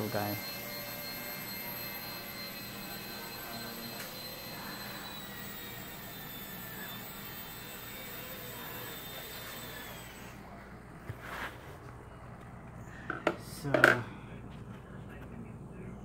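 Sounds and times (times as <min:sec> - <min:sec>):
toy helicopter rotor whining: 0:00.0 - 0:10.5.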